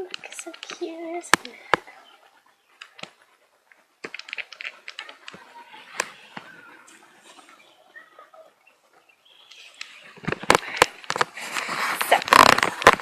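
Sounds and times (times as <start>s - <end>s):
light clicks and taps: 0.0s - 1.9s.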